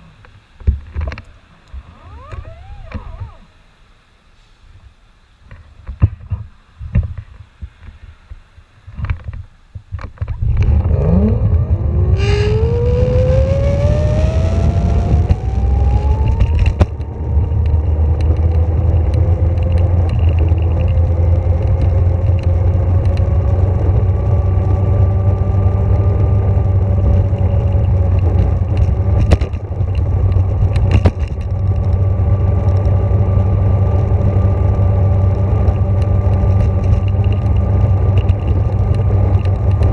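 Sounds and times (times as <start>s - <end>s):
loud low rumble: 10.4s - 30.7s
electric motor whine: 10.5s - 19.5s.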